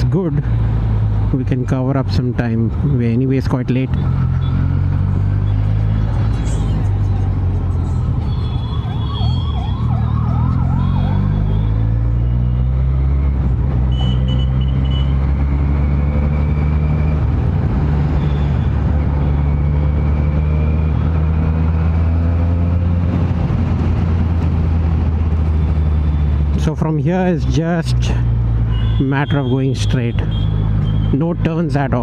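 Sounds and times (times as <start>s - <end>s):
motorcycle engine cruising: 4.0s - 26.6s
warbling siren-like tone: 7.8s - 12.7s.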